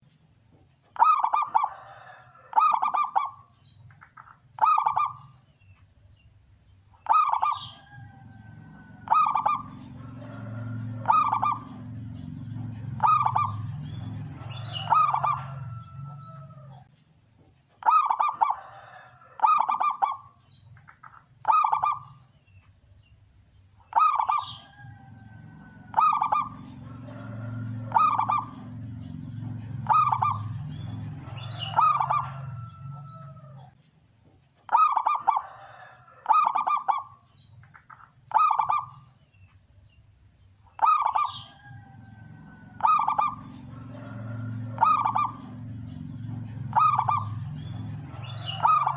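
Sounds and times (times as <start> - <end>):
dove cooing: 1.0 - 3.5, 4.6 - 5.3, 7.0 - 16.9, 17.8 - 20.4, 21.4 - 22.2, 23.9 - 33.7, 34.7 - 37.2, 38.3 - 39.0, 40.8 - 48.9
low hum: 7.8 - 16.9, 24.6 - 33.7, 41.7 - 48.9.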